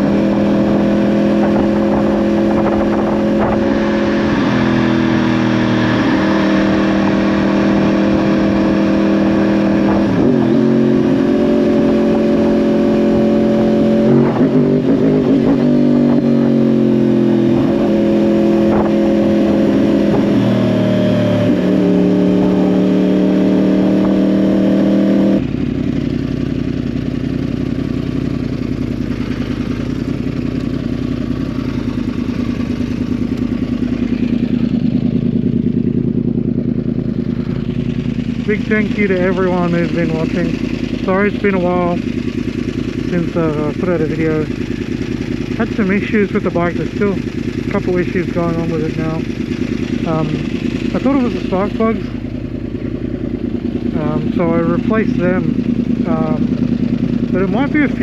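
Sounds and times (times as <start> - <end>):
motorcycle engine running: 0.0 - 58.0
low rumble: 25.4 - 58.0.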